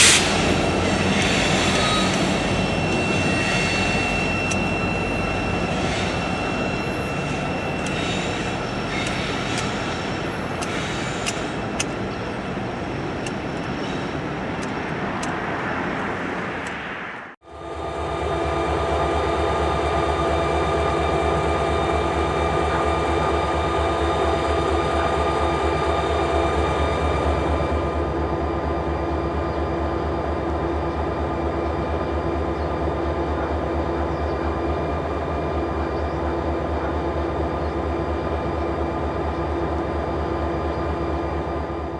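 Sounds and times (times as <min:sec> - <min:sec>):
high hiss: 0:00.0 - 0:15.5
whining tones: 0:00.0 - 0:17.4
freight train rumble: 0:00.0 - 0:41.9.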